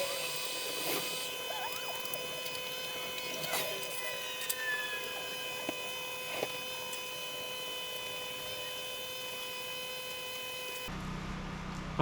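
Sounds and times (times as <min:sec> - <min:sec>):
high-pitched electrical hum: 0:00.0 - 0:12.0.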